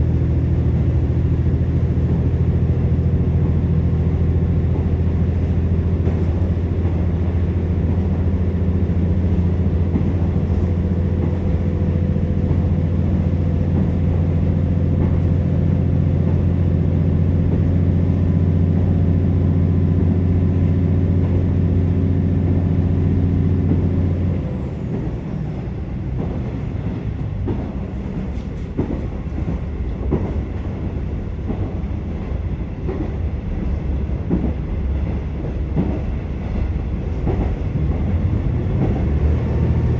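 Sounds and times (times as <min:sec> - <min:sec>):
diesel railcar engine droning: 0:00.0 - 0:39.9.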